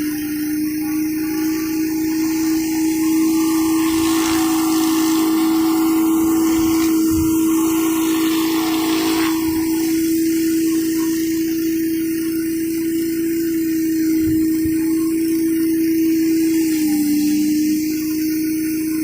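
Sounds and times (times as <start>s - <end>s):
pressure washer engine humming: 0.0s - 19.0s
water spray hissing on concrete: 0.8s - 11.5s.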